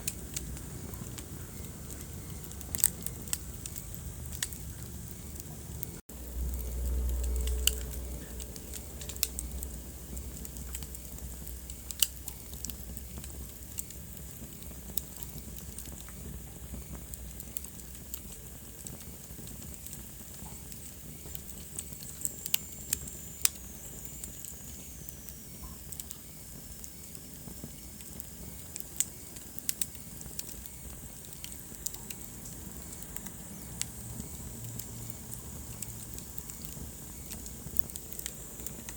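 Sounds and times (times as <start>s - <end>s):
low rumble: 0.0s - 12.0s
wood fire crackling: 0.0s - 38.9s.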